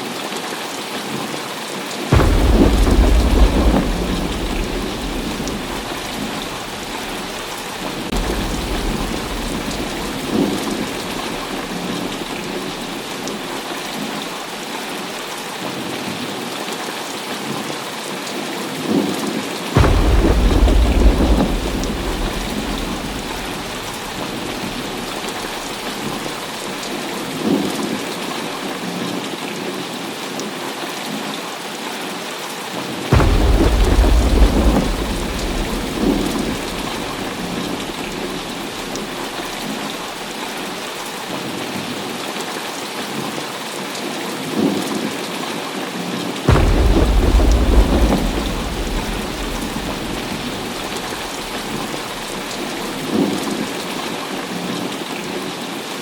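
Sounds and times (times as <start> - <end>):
heavy rain falling: 0.0 - 56.0
thunder claps and rumble: 2.1 - 15.3, 19.7 - 28.6, 33.1 - 42.1, 46.5 - 55.1.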